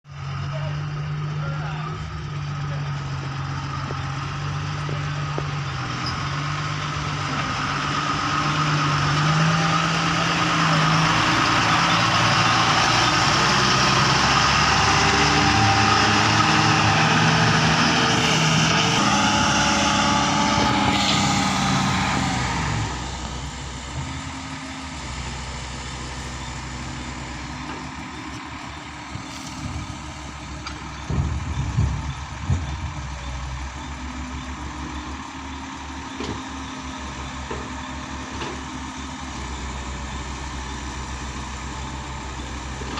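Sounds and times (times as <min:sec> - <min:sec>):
excavator diesel engine under load: 0:00.1 - 0:42.9.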